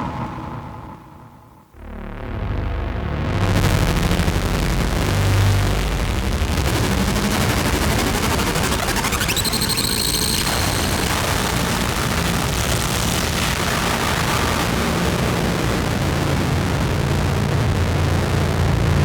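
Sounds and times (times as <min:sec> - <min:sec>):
low hum: 0:00.0 - 0:12.3
pulsing synth noise drone: 0:00.0 - 0:19.0
high whistling tone sweeping up: 0:08.4 - 0:11.7.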